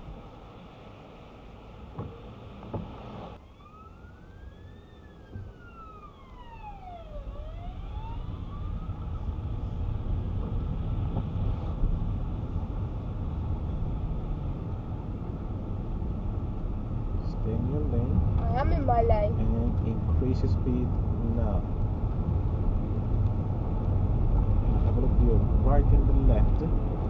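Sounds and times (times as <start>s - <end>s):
car engine: 0.0s - 27.0s
road noise: 0.0s - 27.0s
siren wailing: 3.4s - 9.3s.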